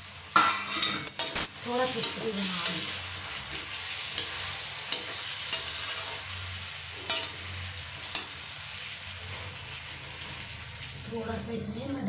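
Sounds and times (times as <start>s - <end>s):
curry sizzling in oil: 0.0s - 12.0s
metal spatula clinking on pan: 0.4s - 2.9s, 4.2s - 5.8s, 7.1s - 7.4s.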